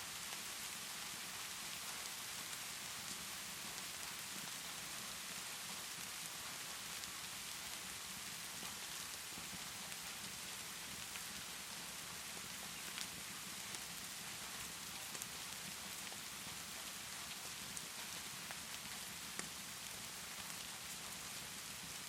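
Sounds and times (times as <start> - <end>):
steady rainfall: 0.0 - 22.0
wood fire crackling: 8.5 - 22.0.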